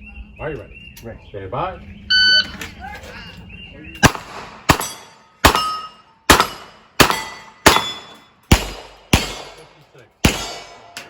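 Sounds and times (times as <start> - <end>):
steel target plates ringing: 4.0 - 11.0.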